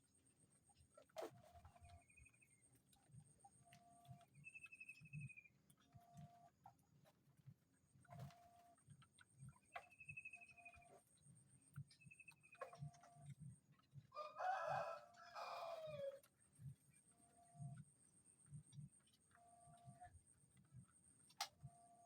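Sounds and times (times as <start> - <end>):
faint rooster crowing: 14.1 - 16.3.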